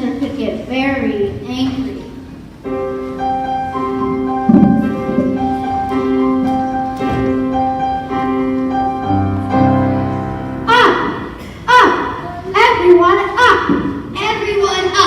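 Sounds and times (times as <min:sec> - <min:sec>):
keyboard playing held chords: 0:02.6 - 0:11.3.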